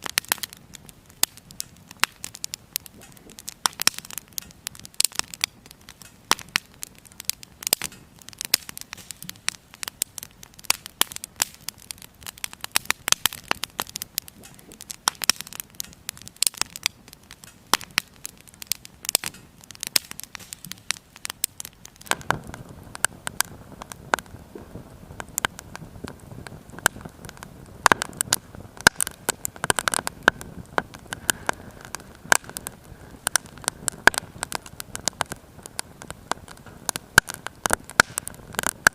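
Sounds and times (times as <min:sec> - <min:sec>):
low rushing of flames: 0:00.0 - 0:38.9
wood fire crackling and popping: 0:00.0 - 0:38.9.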